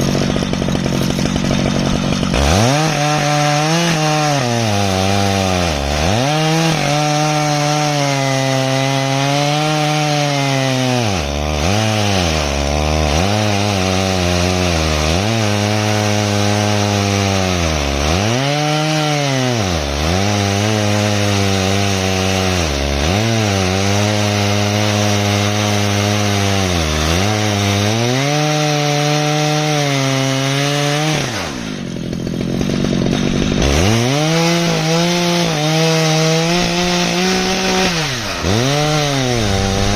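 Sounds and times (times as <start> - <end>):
chainsaw cutting through log: 0.0 - 39.9.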